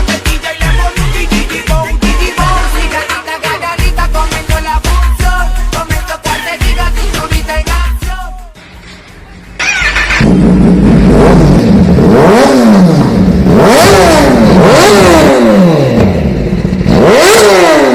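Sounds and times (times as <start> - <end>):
motorcycle engine revving: 9.6 - 17.9.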